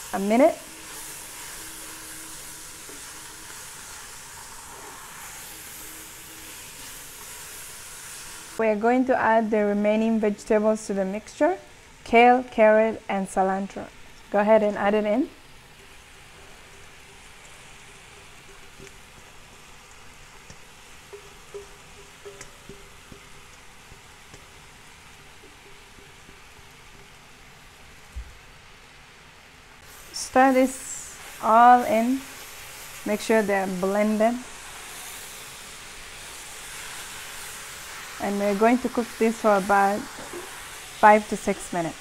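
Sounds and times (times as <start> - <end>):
spatula stirring in pan: 0.0 - 8.6, 15.6 - 28.1, 30.1 - 41.8
vegetables sizzling in oil: 0.0 - 42.0
spatula and bowl tapping: 15.8 - 24.5.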